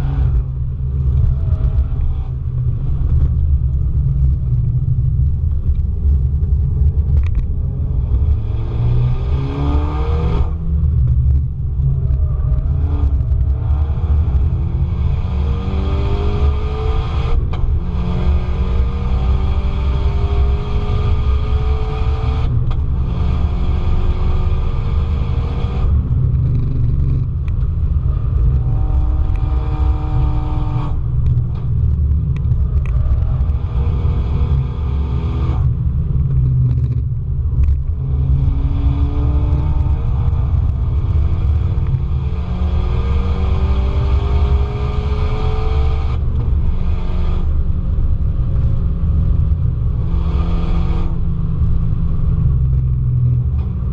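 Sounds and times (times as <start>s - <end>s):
road and wind noise: 0.0s - 53.9s
car engine revving through gears: 6.9s - 53.9s.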